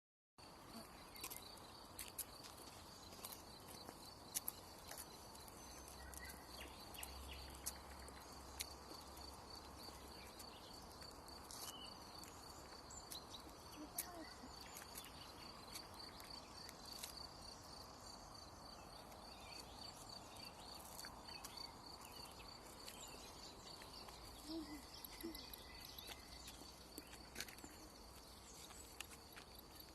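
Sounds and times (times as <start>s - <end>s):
faint bird chirps: 3.0s - 8.9s, 9.8s - 17.1s, 18.9s - 29.2s.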